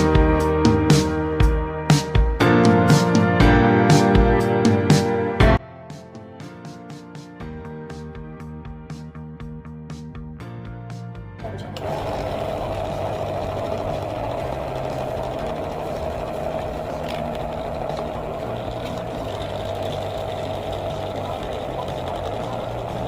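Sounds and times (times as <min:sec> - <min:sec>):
music: 0:00.0 - 0:23.0
small electric motor whirring: 0:11.5 - 0:23.0.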